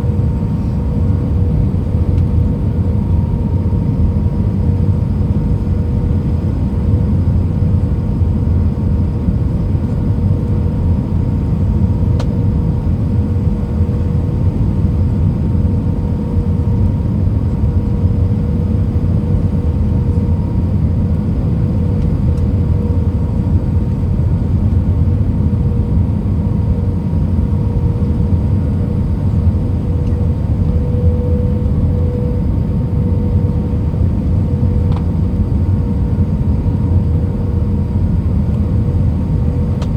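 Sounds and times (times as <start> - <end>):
constant hum: 0.0 - 39.9
rumble of airflow and engines: 0.0 - 39.9.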